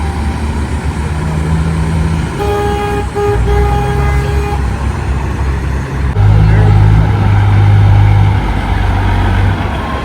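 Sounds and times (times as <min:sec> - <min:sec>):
truck diesel engines rumbling: 0:00.0 - 0:10.0
truck air horn blast: 0:02.4 - 0:04.8.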